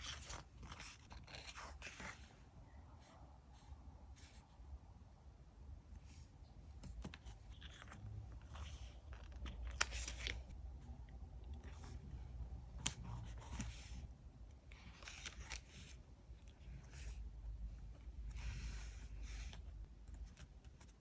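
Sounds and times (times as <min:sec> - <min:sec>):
paper rustling: 0:06.8 - 0:10.5.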